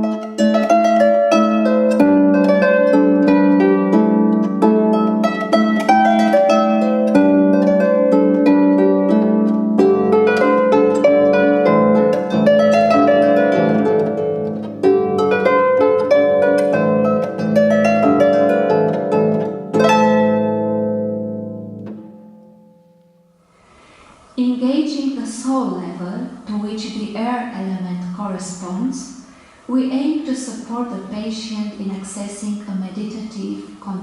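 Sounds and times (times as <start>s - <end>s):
harp playing folk dance tune: 0.0s - 23.5s.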